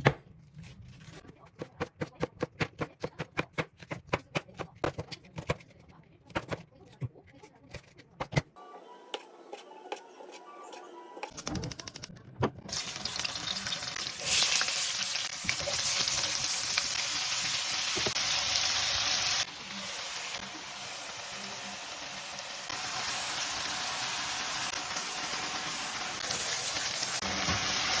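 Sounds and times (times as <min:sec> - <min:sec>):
food sizzling in a frying pan: 0:12.7 - 0:28.0.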